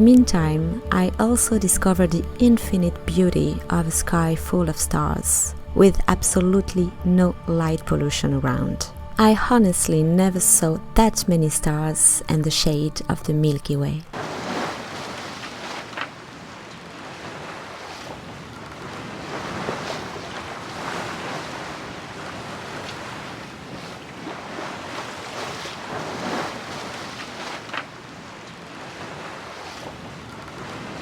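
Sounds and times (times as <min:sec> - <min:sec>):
water rushing along a hull: 0:14.1 - 0:31.0.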